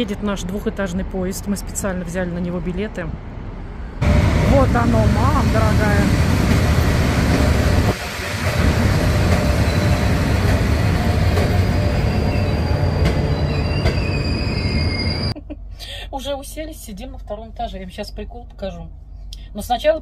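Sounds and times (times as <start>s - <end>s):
train wheels rumbling: 0.0s - 15.4s
high-pitched wheel squeal: 11.0s - 15.4s.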